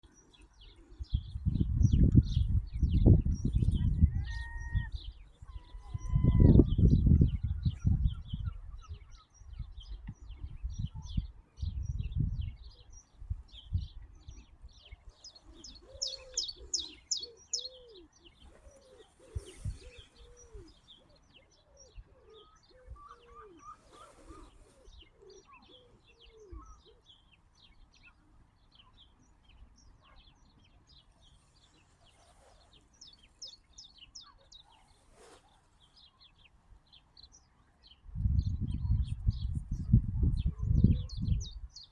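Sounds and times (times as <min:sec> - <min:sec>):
small birds chirping: 0:00.0 - 0:41.9
wind buffeting microphone: 0:00.7 - 0:17.6, 0:18.4 - 0:20.9, 0:38.0 - 0:41.9.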